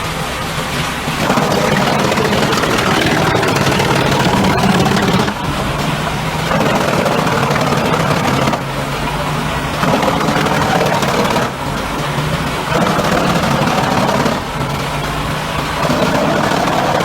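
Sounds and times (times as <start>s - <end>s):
wood chipper engine: 0.2s - 17.0s
rough wood chipping noise: 1.2s - 8.7s, 9.8s - 11.7s, 15.6s - 17.0s.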